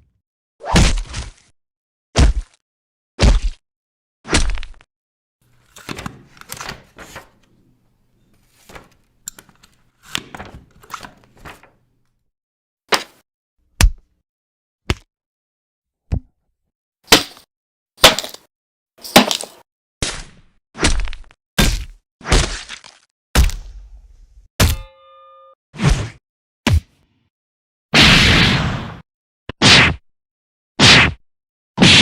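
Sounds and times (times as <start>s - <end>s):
comedic hit sound effects: 24.6s - 25.3s.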